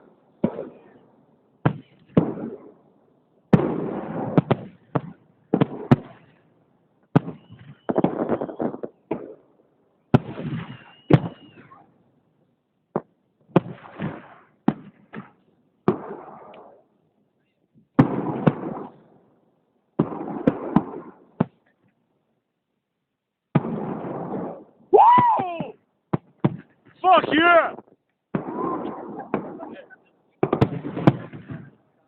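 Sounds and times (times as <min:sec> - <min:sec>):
fireworks shells bursting: 0:07.1 - 0:09.5, 0:10.2 - 0:11.8
high firework whistle: 0:07.2 - 0:09.0, 0:10.4 - 0:11.9.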